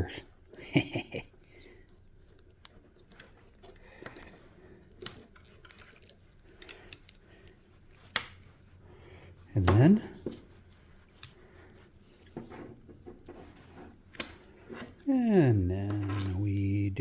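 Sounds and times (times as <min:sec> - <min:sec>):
clicks and rustles of small parts: 0:01.2 - 0:08.8, 0:09.6 - 0:15.1.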